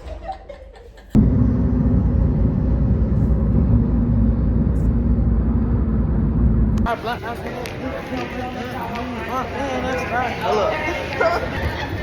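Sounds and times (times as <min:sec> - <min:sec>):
vehicle interior rumble: 0:01.2 - 0:07.0.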